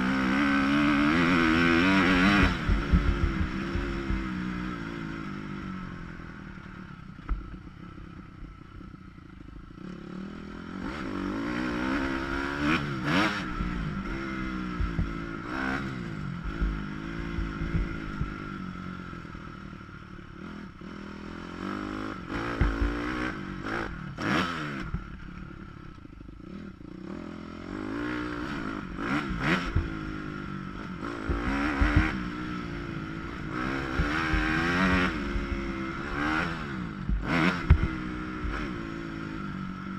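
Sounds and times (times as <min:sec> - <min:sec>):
dirt bike engine revving: 0:00.0 - 0:06.4, 0:09.1 - 0:39.9
knocks and clatter from bike: 0:02.2 - 0:04.4, 0:07.2 - 0:07.8, 0:14.7 - 0:15.3, 0:16.4 - 0:18.5, 0:22.4 - 0:23.2, 0:29.4 - 0:30.1, 0:31.1 - 0:32.4, 0:37.0 - 0:38.8.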